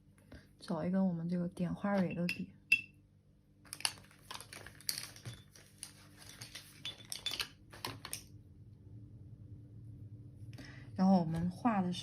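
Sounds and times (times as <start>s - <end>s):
paintbrushes rattling and clinking: 3.7s - 8.2s.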